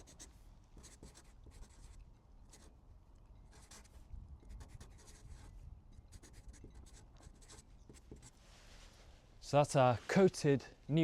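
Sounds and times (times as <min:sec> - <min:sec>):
pen scratching on paper: 0:00.0 - 0:02.7, 0:03.5 - 0:08.4.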